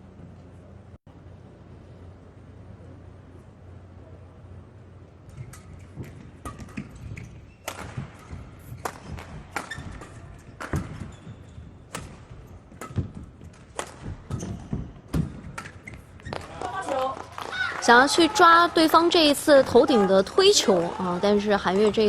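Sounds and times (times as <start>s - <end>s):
court shoes squeaking: 5.2s - 16.9s
rackets hitting shuttlecock: 5.3s - 17.5s.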